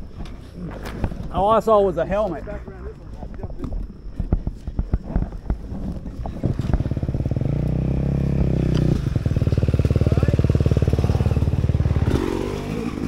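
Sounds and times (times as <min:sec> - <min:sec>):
dirt bike engine revving: 0:06.3 - 0:13.0.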